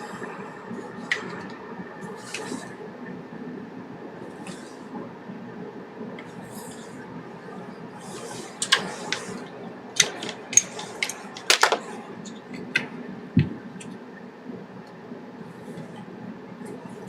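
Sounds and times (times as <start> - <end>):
small metal clicks and clinks: 11.4 - 11.8.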